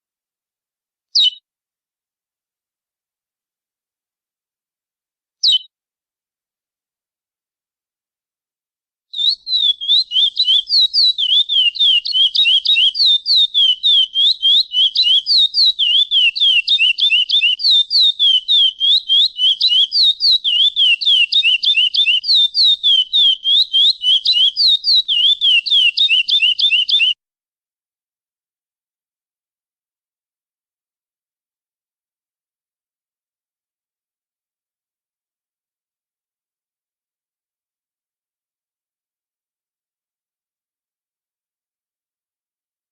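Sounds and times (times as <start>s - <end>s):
finch singing whistled notes: 1.2s - 1.4s, 5.4s - 5.7s, 9.2s - 27.2s.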